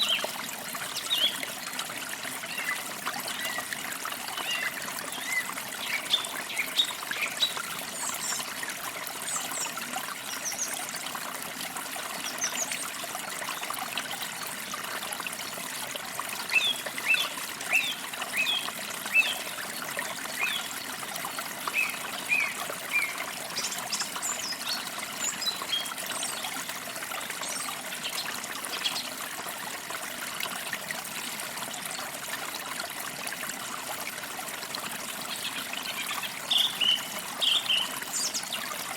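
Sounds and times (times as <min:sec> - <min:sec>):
stream trickling: 0:00.0 - 0:38.9
small birds chirping: 0:35.3 - 0:38.7.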